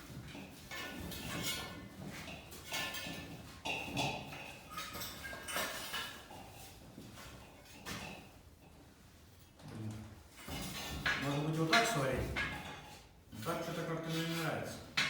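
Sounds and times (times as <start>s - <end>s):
metallic knocks and clinks: 0.7s - 6.3s.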